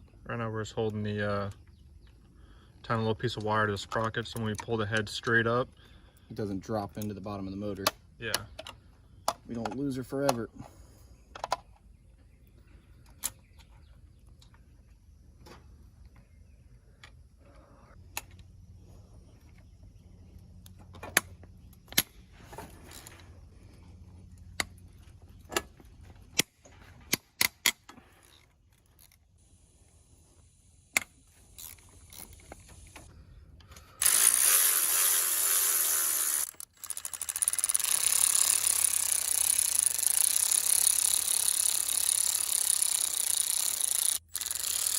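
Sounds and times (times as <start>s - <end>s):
metallic clicks of hand tools: 27.1s - 29.2s
loud power tool running: 34.0s - 44.9s.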